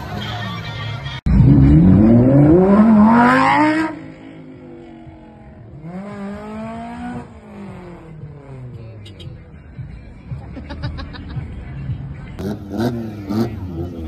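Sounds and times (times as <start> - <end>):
car engine revving: 1.3 - 9.0, 12.3 - 14.0
quieter engine rev: 1.3 - 9.0, 11.3 - 14.0.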